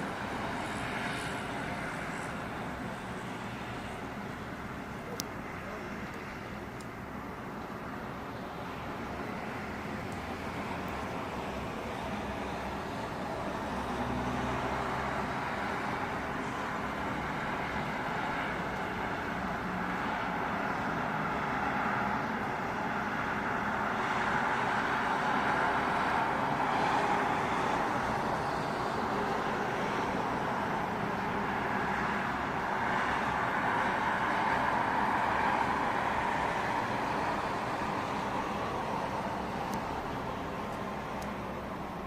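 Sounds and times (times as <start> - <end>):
faint low engine hum: 0.0 - 24.1
traffic hiss: 0.0 - 42.0.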